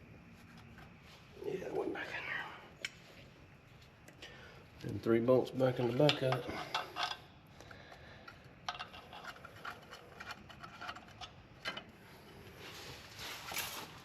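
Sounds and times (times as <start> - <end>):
scraping rustle: 12.6 - 14.0.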